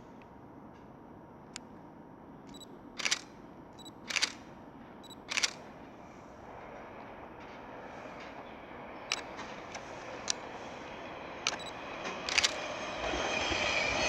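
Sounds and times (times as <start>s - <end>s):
camera beeping: 2.5s - 5.7s, 9.1s - 9.4s, 11.5s - 12.6s
camera shutter clack: 3.0s - 3.3s, 3.9s - 4.5s, 5.1s - 5.7s, 9.1s - 9.5s, 11.5s - 11.7s, 12.3s - 12.6s.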